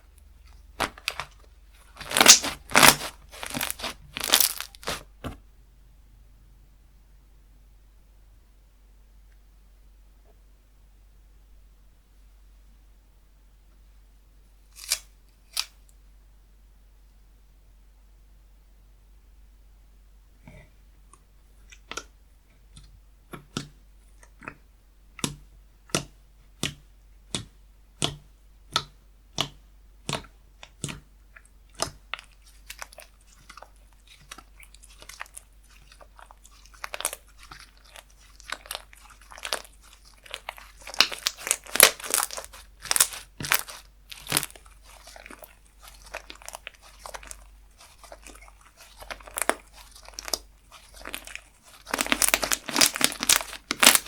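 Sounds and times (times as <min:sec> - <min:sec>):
slime popping and squishing: 0:00.8 - 0:05.0, 0:25.2 - 0:54.0.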